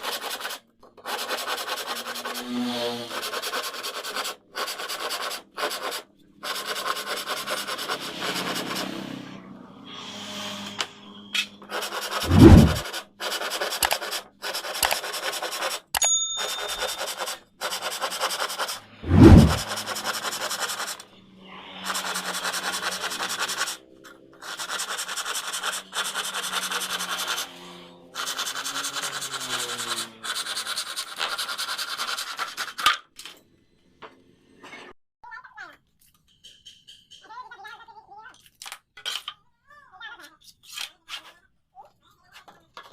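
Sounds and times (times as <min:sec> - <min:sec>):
rasping rubbing noise: 0:11.7 - 0:15.9, 0:16.8 - 0:32.8
ringing ding: 0:16.0 - 0:17.0.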